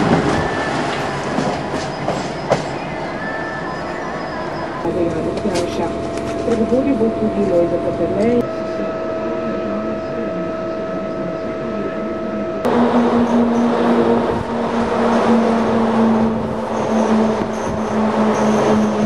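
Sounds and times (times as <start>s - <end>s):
train wheels rumbling: 0.0s - 8.4s, 12.7s - 19.0s
electric locomotive humming: 0.0s - 19.0s
rushing air: 12.7s - 19.0s.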